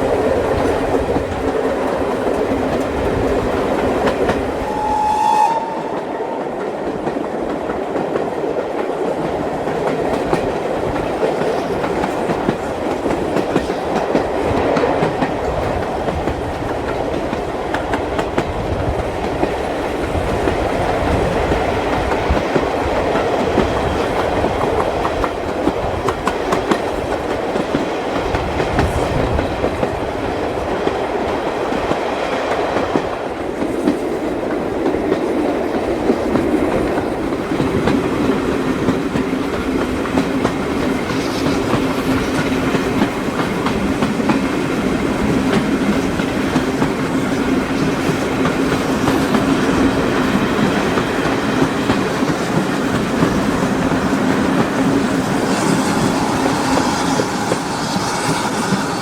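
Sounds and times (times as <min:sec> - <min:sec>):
train wheels clacking on rail joints: 0:00.0 - 0:59.0.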